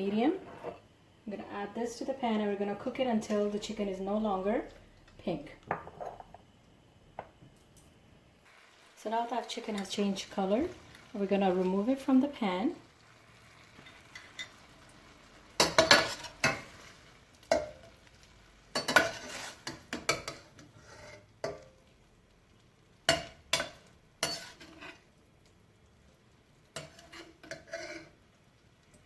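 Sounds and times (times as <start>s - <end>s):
utensil scraping a frying pan: 0.0s - 0.9s, 13.7s - 14.6s, 15.6s - 18.0s, 18.7s - 21.6s, 23.1s - 25.1s, 26.8s - 28.3s.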